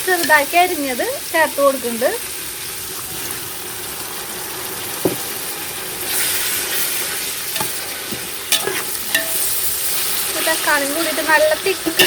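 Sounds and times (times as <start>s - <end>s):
vegetables sizzling in a frying pan: 0.0s - 12.0s
utensil knocking on pan: 5.0s - 5.3s.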